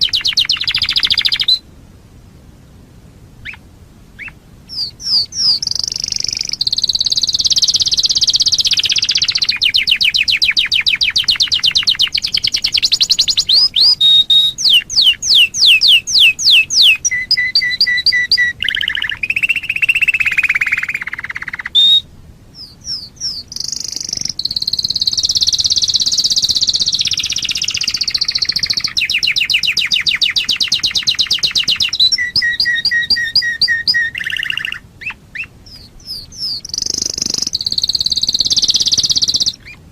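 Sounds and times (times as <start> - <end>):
canary singing trills: 0.0 - 1.6, 3.4 - 3.6, 4.2 - 39.9.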